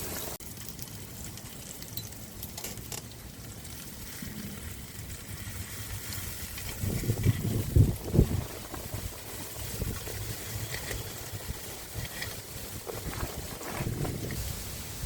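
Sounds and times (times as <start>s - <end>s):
crackling hiss: 0.0s - 15.0s
wind buffeting microphone: 3.9s - 15.0s.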